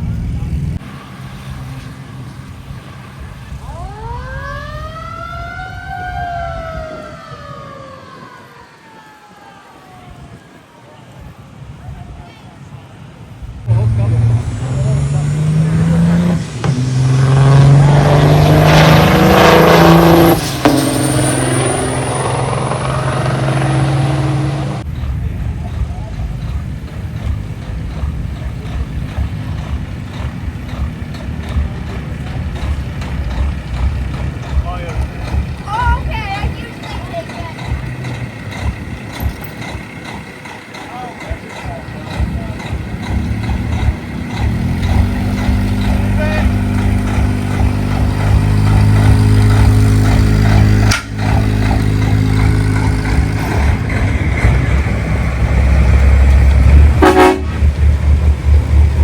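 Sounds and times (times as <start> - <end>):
truck engine rumbling: 0.0 - 59.0
siren wailing: 3.5 - 10.8.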